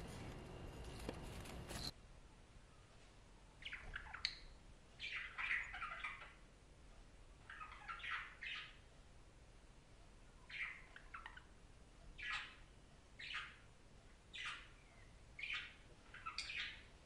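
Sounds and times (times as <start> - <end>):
budgerigar chirping and chattering: 3.6 - 6.4, 7.4 - 8.8, 10.5 - 11.5, 12.2 - 12.6, 13.2 - 13.7, 14.3 - 16.9.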